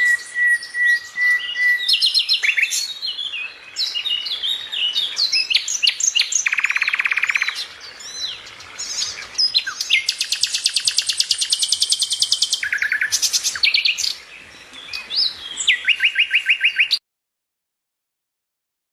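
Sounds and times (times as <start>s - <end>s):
birds chirping: 0.0s - 17.0s
rapid bird trills: 5.2s - 17.0s.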